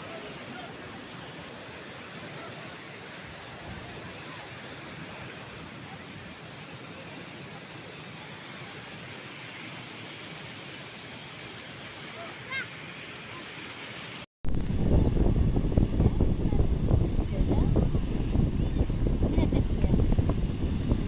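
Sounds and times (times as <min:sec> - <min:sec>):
sea surf washing on shore: 0:00.0 - 0:21.0.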